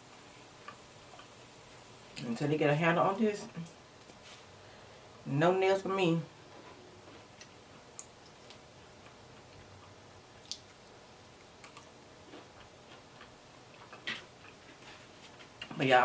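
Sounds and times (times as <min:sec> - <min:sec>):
eating clicks and smacks: 0:07.4 - 0:14.8.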